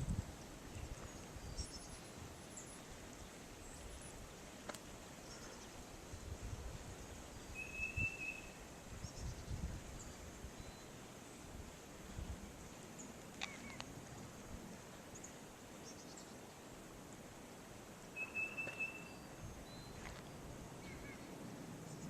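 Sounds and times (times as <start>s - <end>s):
snowstorm ambience: 0.0s - 18.2s, 19.0s - 22.0s
high bird chirps: 7.6s - 9.3s, 18.2s - 20.0s.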